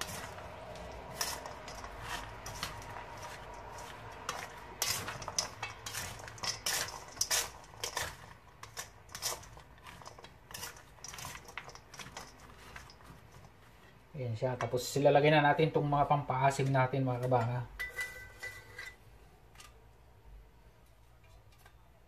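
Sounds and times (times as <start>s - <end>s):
spatula scraping metal bowl: 0.0s - 14.0s, 16.5s - 19.0s.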